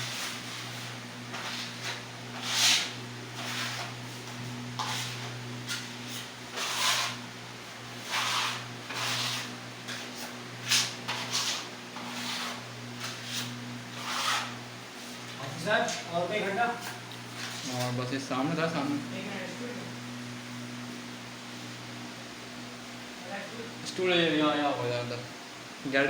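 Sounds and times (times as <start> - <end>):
putty scraper scraping a wall: 0.0 - 7.3, 7.9 - 14.6
steady low hum: 0.0 - 26.0.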